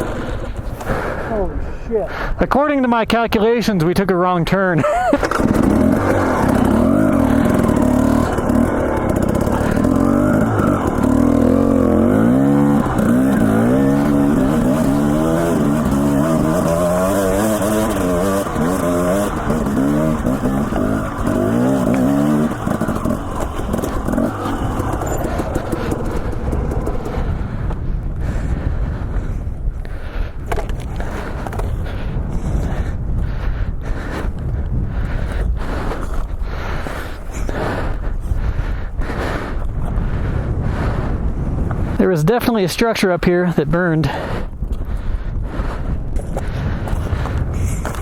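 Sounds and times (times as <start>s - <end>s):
dirt bike engine revving: 4.9s - 29.2s.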